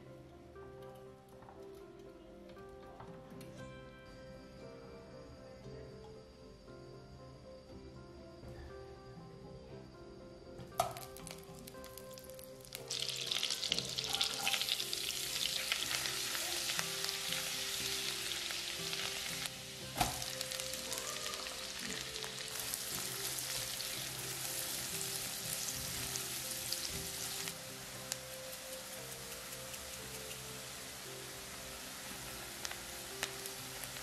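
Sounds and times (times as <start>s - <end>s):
faint background music: 0.0s - 34.0s
butter sizzling in frying pan: 10.8s - 34.0s
onion and garlic frying: 10.8s - 34.0s.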